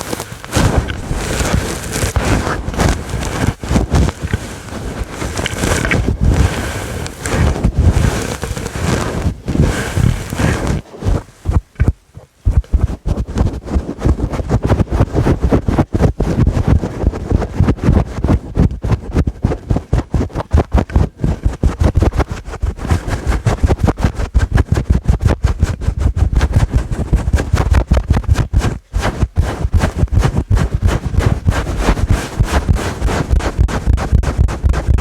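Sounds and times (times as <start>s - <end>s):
fingers scratching furry microphone cover: 0.0s - 35.0s.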